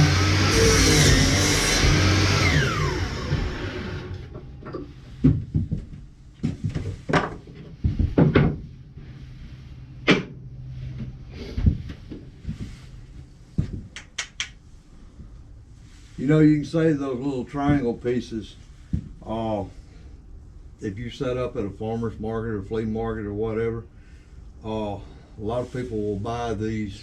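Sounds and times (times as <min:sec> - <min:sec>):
power saw winding down: 0:00.0 - 0:04.3.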